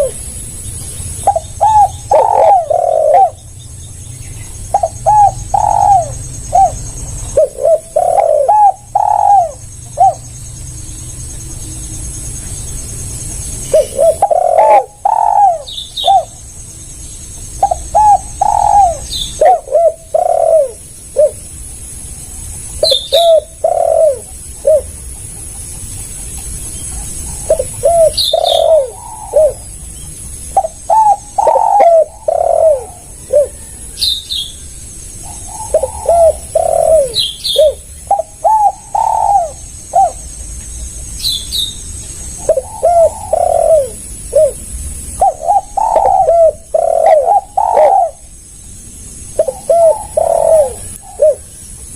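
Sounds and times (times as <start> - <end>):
dove cooing: 0.0 - 0.4, 1.2 - 3.6, 4.4 - 10.3, 13.7 - 16.4, 17.6 - 21.5, 22.5 - 26.2, 26.9 - 29.7, 30.5 - 34.2, 35.2 - 40.3, 42.4 - 48.3, 49.4 - 51.5
small bird chirping: 0.0 - 51.9.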